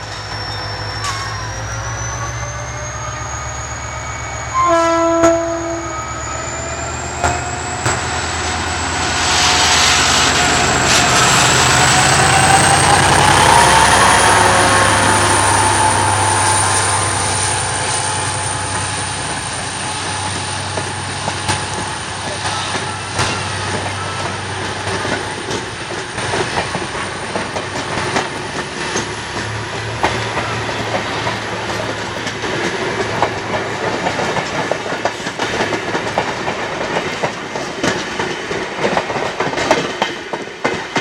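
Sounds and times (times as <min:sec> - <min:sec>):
rising whine: 0:00.0 - 0:22.4
diesel locomotive engine throbbing: 0:00.0 - 0:39.3
locomotive horn blast: 0:04.5 - 0:06.1.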